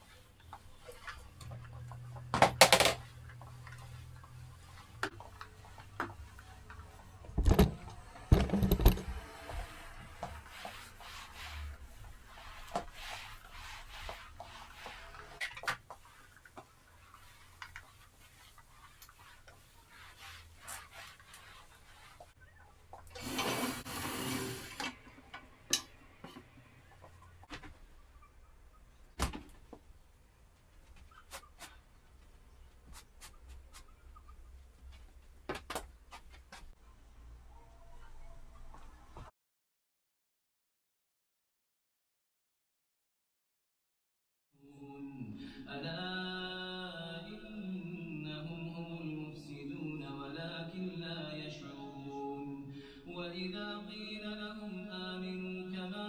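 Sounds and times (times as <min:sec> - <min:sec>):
household knocks and clatters: 0:07.3 - 0:09.2.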